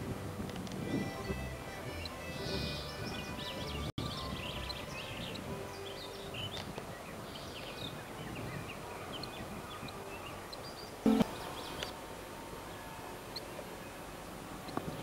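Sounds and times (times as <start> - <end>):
outdoor background hiss: 0.0 - 15.0
small birds chirping: 1.9 - 12.0
loud pitched sound: 11.1 - 11.3.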